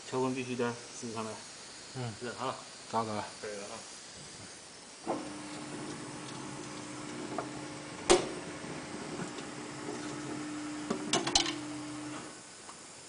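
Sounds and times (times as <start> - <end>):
tyre changer motor humming: 5.1 - 12.4.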